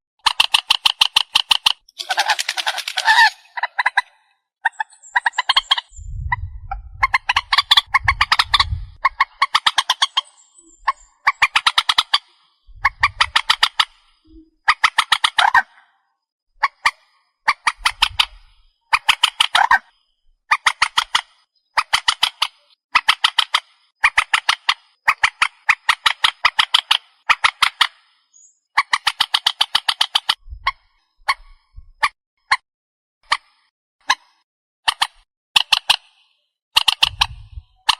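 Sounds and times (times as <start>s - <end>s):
swamphen harsh squawking: 2.0s - 4.1s.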